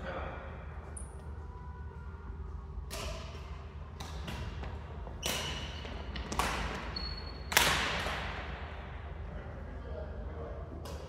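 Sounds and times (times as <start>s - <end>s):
rackets hitting shuttlecock: 2.9s - 8.4s
short high squeak: 7.0s - 7.5s.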